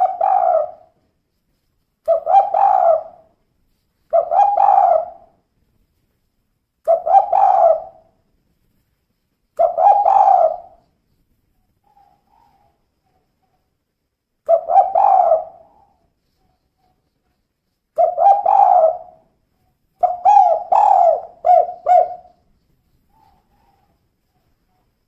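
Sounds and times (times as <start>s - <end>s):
dove cooing: 0.0s - 1.0s, 2.1s - 3.3s, 4.1s - 5.3s, 6.9s - 8.1s, 9.6s - 10.9s, 14.5s - 17.0s, 18.0s - 19.3s, 20.0s - 24.9s.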